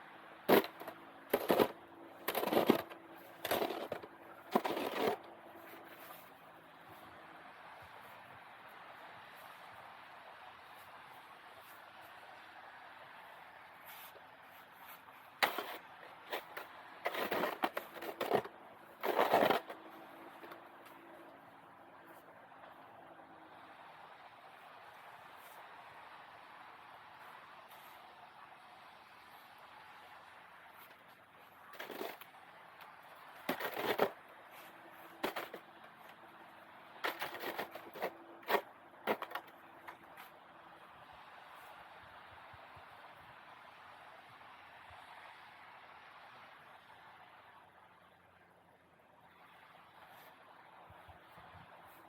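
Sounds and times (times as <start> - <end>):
roof rake scraping snow: 0.4 - 7.1, 13.8 - 21.3, 27.7 - 28.1, 30.8 - 32.3, 33.0 - 40.3.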